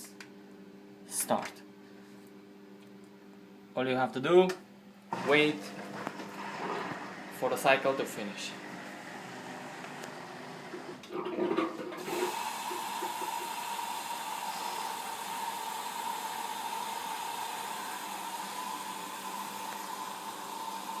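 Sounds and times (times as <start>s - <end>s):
washing machine whine: 5.1s - 21.0s
water rushing into washing machine: 5.1s - 21.0s.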